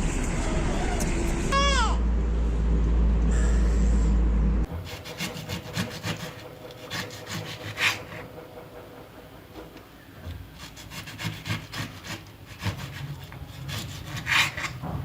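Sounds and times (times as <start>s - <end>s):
loud low rumble: 0.0s - 4.8s.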